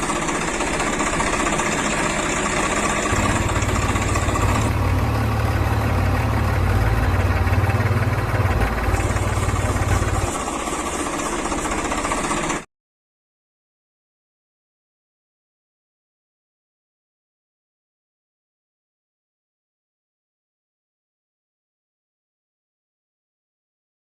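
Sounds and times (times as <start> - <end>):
tractor engine running: 0.0 - 12.7.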